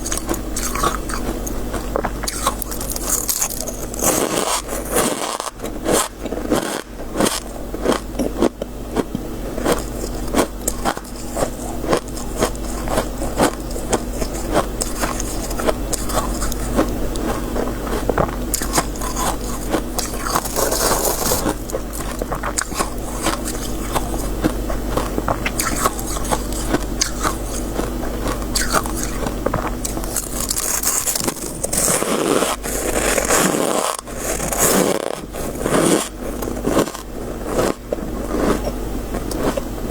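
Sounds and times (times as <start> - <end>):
frost crunching: 0.0 - 6.5, 12.0 - 39.6
steady low hum: 0.0 - 39.9
frost scraping: 19.0 - 21.8.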